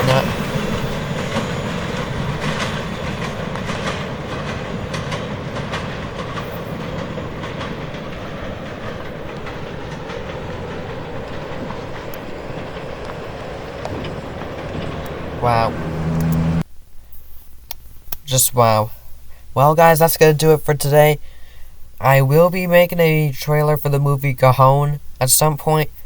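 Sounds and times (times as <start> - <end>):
freight train rolling past: 0.0 - 16.7
wheels clicking over rail joints: 0.0 - 16.7.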